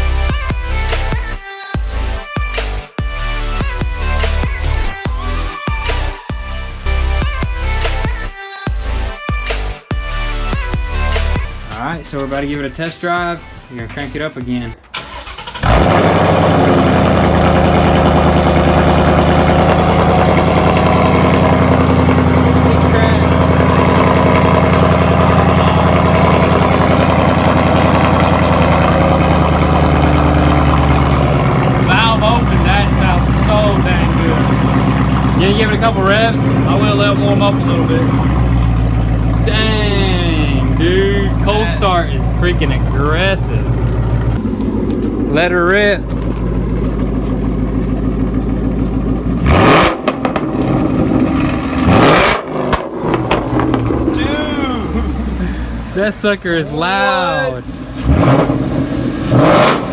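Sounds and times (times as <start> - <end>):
car engine idling: 0.0 - 9.1, 10.0 - 59.9
exhaust pops: 13.8 - 56.6.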